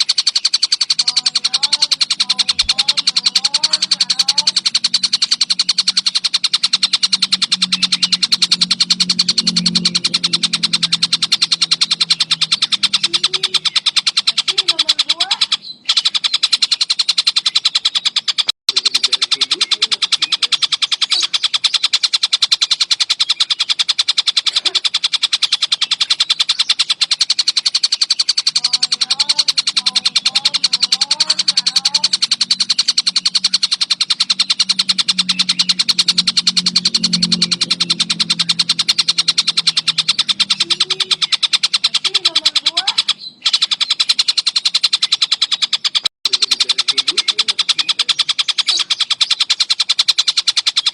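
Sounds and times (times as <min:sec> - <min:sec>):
kingfisher calling rapid high notes: 0:00.0 - 0:50.9.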